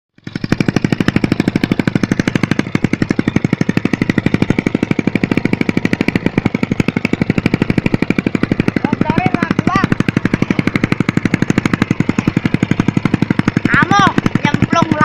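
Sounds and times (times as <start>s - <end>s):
motorcycle engine idling: 0.1s - 15.0s.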